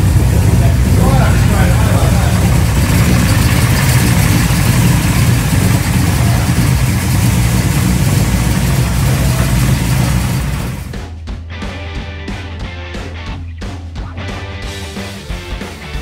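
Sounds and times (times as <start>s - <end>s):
car engine idling loudly: 0.0s - 11.0s.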